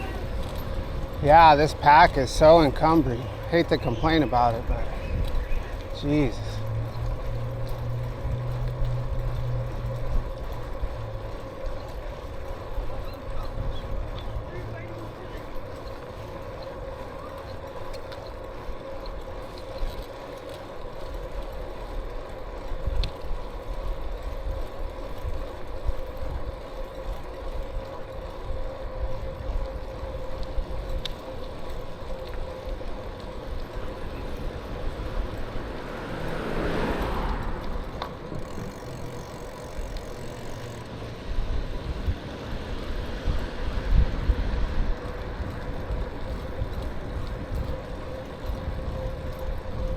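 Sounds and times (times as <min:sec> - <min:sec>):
bicycle tyre noise: 0:00.0 - 0:49.9
wind rumbling on microphone: 0:00.0 - 0:49.9
vehicle rushing by: 0:33.9 - 0:41.3.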